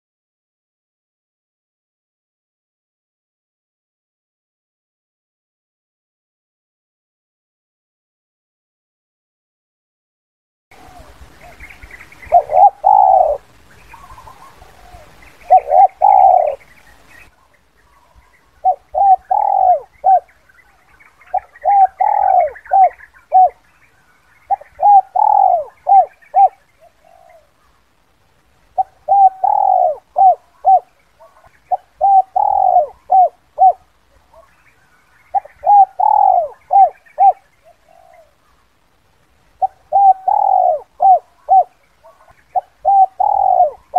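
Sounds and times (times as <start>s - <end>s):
dove cooing: 10.8s - 23.7s, 24.4s - 27.8s, 28.7s - 38.6s, 39.6s - 43.9s.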